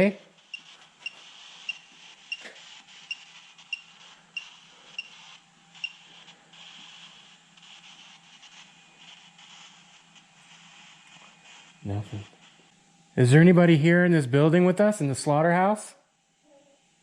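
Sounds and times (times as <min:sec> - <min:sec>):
faint steady hum: 0:00.0 - 0:17.0
short high electronic beeps: 0:00.5 - 0:05.2.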